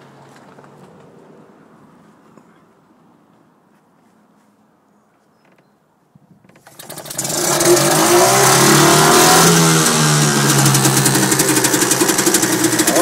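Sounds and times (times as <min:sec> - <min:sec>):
outboard motor starting and running: 0:06.6 - 0:13.0.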